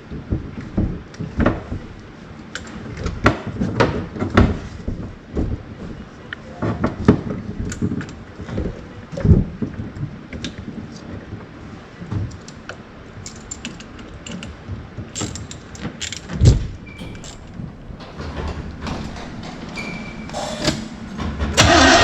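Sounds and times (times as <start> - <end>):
metallic clicks and clinks: 17.0 - 21.1
heavy thumps: 17.0 - 22.0.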